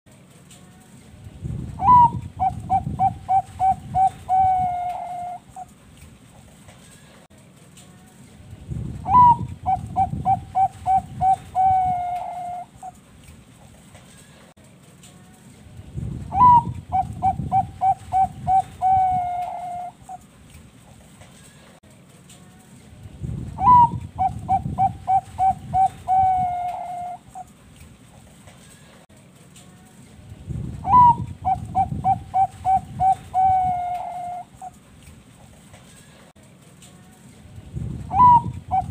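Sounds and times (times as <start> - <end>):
dove cooing: 1.8 - 5.7, 9.0 - 13.0, 16.3 - 20.3, 23.6 - 27.5, 30.8 - 34.8, 38.1 - 38.9.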